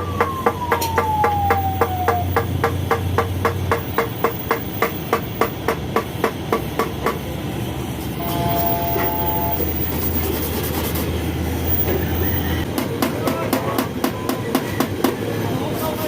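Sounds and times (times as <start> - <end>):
hammer tapping: 0.2 - 7.2
two-note tone: 8.2 - 9.9.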